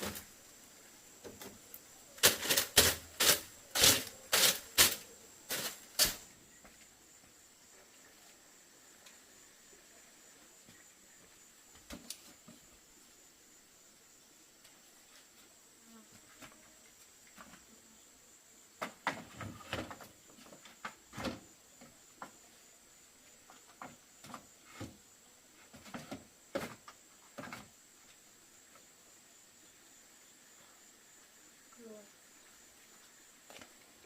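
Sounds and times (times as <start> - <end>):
insects buzzing: 0.0 - 34.0.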